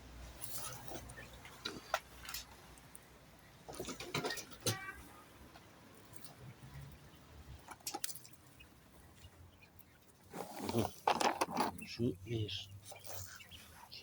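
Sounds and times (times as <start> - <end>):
clicks and rustling in a cage: 3.6 - 6.4, 7.6 - 8.4, 10.3 - 12.0.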